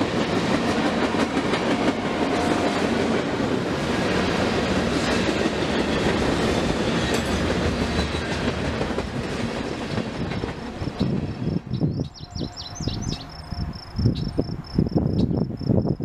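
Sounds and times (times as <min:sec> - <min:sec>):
freight train wheels clattering: 0:00.0 - 0:11.7
high chirping: 0:11.6 - 0:15.5.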